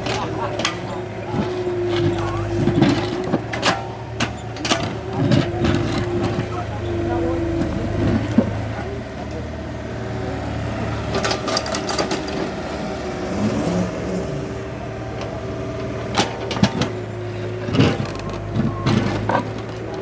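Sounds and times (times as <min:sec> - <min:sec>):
metal clanks and knocks: 0:00.0 - 0:08.9, 0:11.1 - 0:12.6, 0:15.2 - 0:20.0
excavator diesel engine running: 0:00.0 - 0:20.0.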